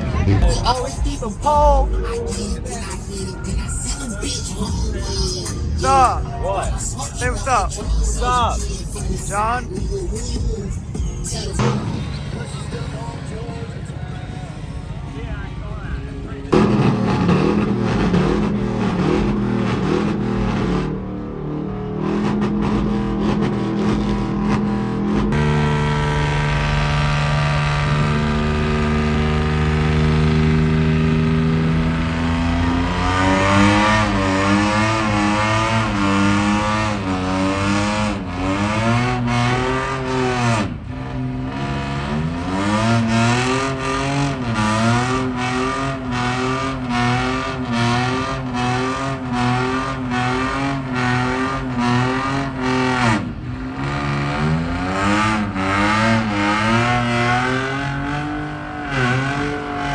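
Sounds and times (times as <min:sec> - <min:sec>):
vehicle engine revving: 0:00.0 - 0:59.9.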